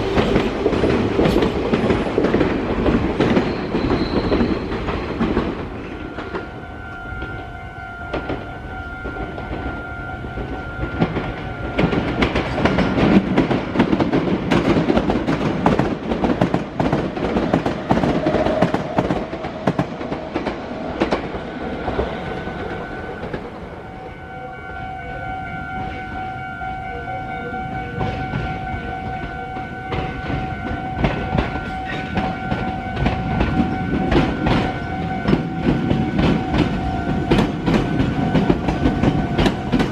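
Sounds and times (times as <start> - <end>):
train wheels clacking over rail joints: 0.0 - 6.6, 10.4 - 23.5, 28.0 - 39.9
steady high tones: 20.6 - 39.9.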